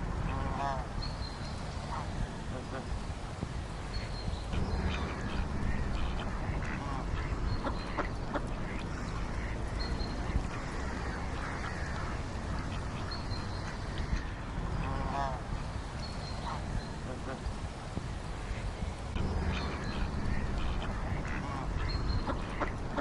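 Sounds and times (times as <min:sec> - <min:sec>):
steady background noise: 0:00.0 - 0:23.0
ducks quacking: 0:00.2 - 0:01.0, 0:03.9 - 0:23.0.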